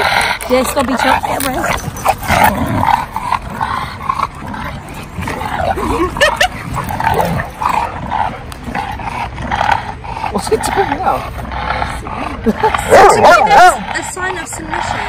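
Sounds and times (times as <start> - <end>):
dogs yipping and whining: 0.0 - 15.0
dog yelps: 12.9 - 13.8.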